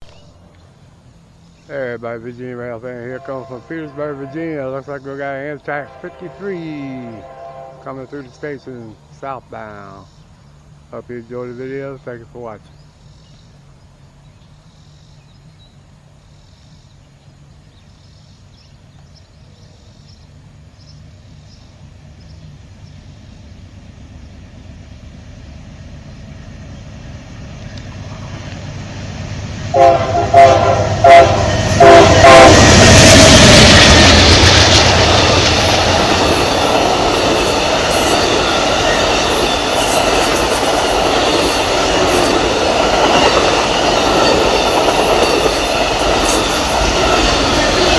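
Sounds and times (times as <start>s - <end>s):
train rumble: 0.0s - 47.9s
train horn blasts: 2.2s - 10.0s, 29.7s - 47.9s
wheels clacking over rail joints: 31.8s - 47.9s.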